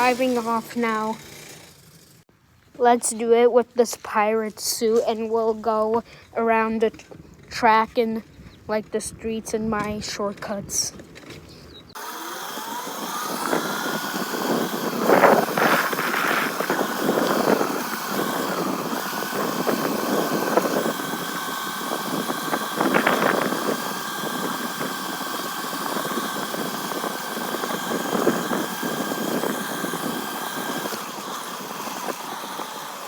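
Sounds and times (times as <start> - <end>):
motorcycle engine whine: 0.0 - 2.2, 11.0 - 33.0.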